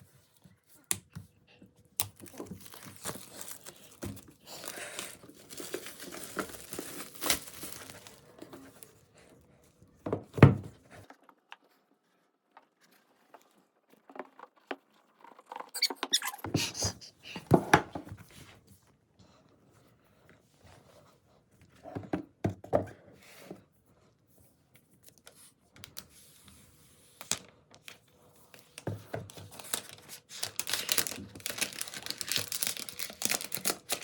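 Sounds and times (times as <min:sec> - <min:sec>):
packaging crinkling and tearing: 0:02.0 - 0:09.0, 0:28.7 - 0:34.0.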